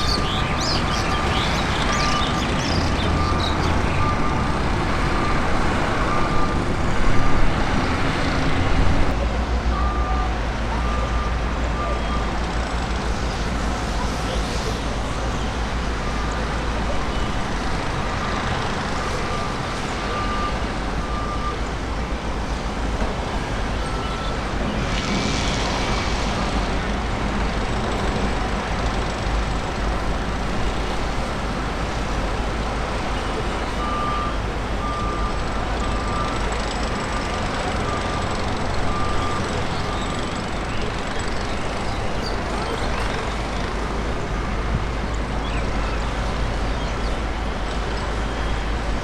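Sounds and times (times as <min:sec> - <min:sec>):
reversing beeper: 0:00.0 - 0:07.4, 0:23.8 - 0:26.5, 0:33.4 - 0:40.9
engine and traffic rumble: 0:00.0 - 0:49.0.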